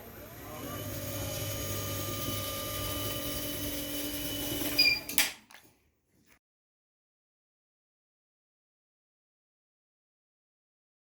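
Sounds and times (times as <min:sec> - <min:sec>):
stairlift motor humming with whine: 0:00.0 - 0:04.8.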